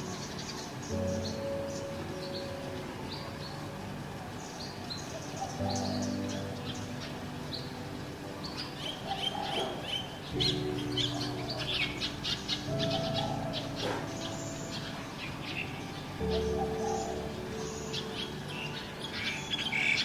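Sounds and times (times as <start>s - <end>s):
small birds chirping and trilling: 0.0s - 20.0s
soft background music chords: 0.0s - 20.0s.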